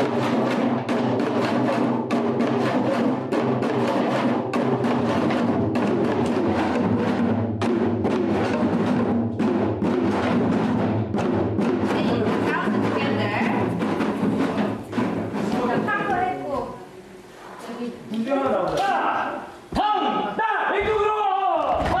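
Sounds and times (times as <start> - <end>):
hourglass drum rapid strikes: 0.0 - 16.8.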